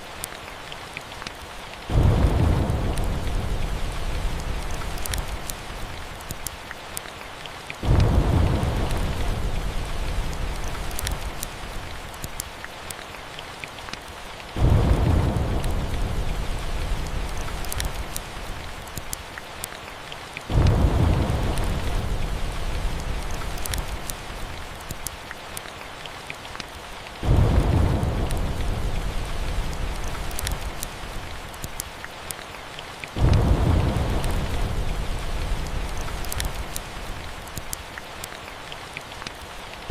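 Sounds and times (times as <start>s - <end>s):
steady rain: 0.0s - 39.9s
thunder claps rumbling: 1.9s - 6.2s, 7.8s - 12.1s, 14.5s - 18.8s, 20.5s - 24.8s, 27.2s - 31.6s, 33.2s - 37.7s.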